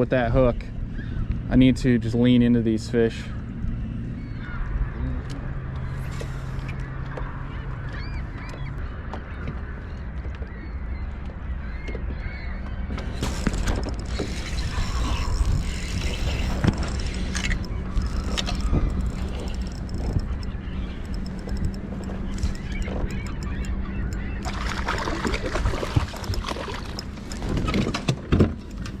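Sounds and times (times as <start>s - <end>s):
steady low hum: 12.8s - 29.0s
small bird chirps: 14.1s - 25.0s.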